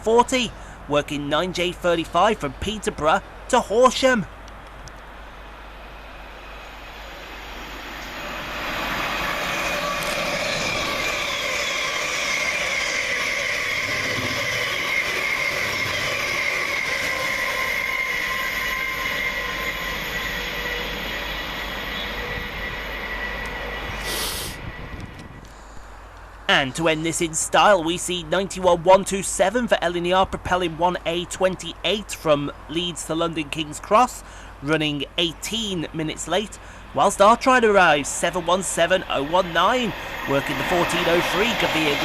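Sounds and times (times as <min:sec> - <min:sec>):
train rail and wheel noise: 0:00.0 - 0:42.0
high steady whining tones: 0:02.6 - 0:27.0, 0:33.8 - 0:42.0.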